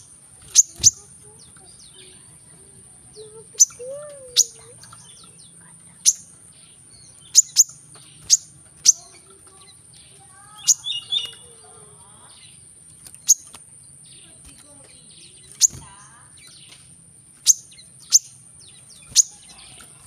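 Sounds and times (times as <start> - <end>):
bird calling high notes: 0.4 - 5.4, 10.1 - 12.4.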